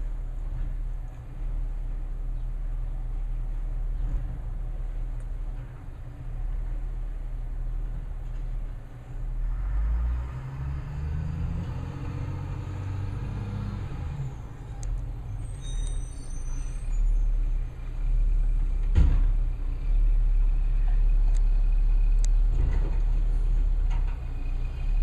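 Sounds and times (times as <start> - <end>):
garbage truck engine revving: 9.4 - 14.5
faint high squeals: 14.3 - 17.8
sharp clunk: 18.8 - 19.4.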